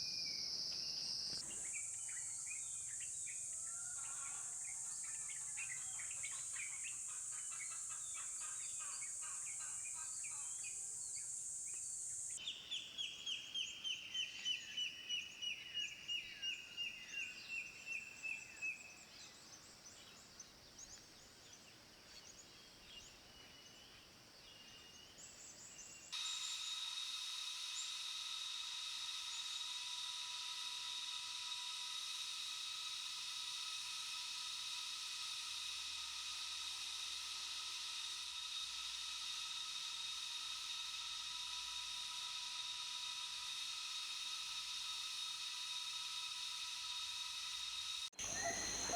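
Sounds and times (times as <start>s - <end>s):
high insect hiss: 0.0s - 48.9s
wild bird calls: 48.2s - 48.9s.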